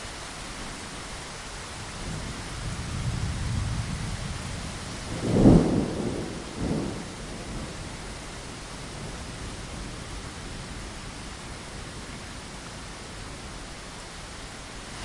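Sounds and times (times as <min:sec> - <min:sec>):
rain hissing against a window: 0:00.0 - 0:15.0
thunder rumbling: 0:02.0 - 0:08.0, 0:14.6 - 0:15.0.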